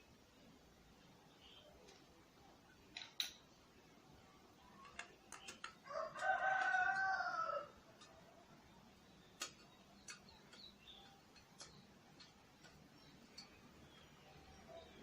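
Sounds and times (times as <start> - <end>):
rooster crowing: 5.8 - 7.8.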